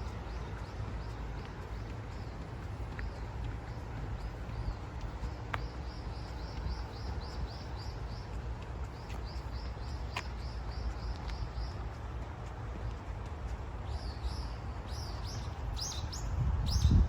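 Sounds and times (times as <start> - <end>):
bird chirping: 13.8 - 17.0.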